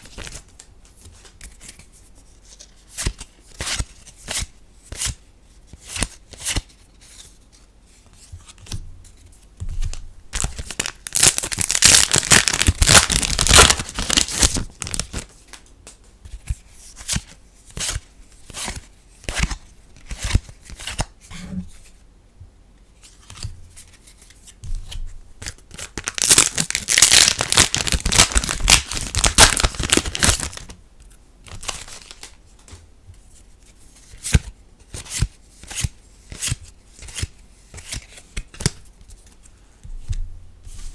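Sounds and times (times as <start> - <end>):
foil packs tearing and crinkling: 10.4 - 15.2, 25.9 - 30.7.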